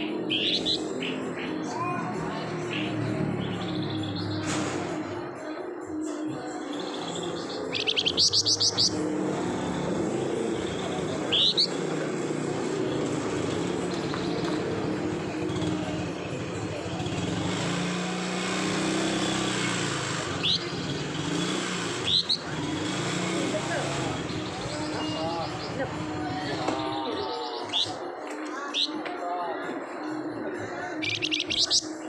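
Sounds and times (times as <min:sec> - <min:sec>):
songbird chattering: 0:07.1 - 0:09.0, 0:09.6 - 0:11.9, 0:19.6 - 0:21.0, 0:22.0 - 0:22.6, 0:30.9 - 0:32.0.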